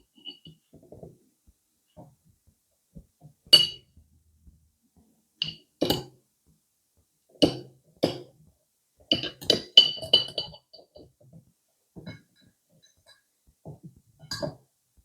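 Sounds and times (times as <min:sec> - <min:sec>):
tableware clinking: 0:03.6 - 0:03.8.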